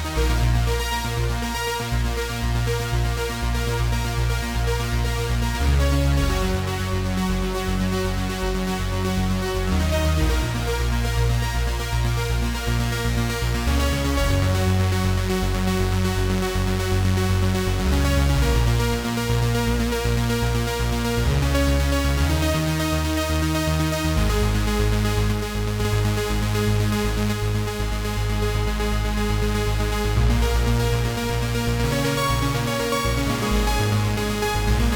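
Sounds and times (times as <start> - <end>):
synthesizer chords over deep bass: 0.0 - 34.9.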